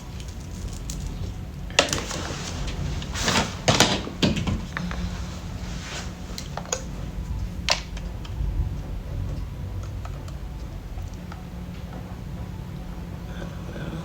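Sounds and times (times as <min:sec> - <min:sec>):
plastic parts clicking: 0:00.0 - 0:05.0, 0:06.4 - 0:08.4
steady low hum: 0:00.0 - 0:14.0.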